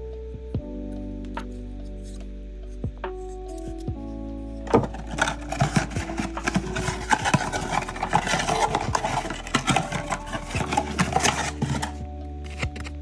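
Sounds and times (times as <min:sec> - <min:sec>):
faint background music: 0:00.0 - 0:13.0
packaging crinkling and rustling: 0:04.6 - 0:13.0.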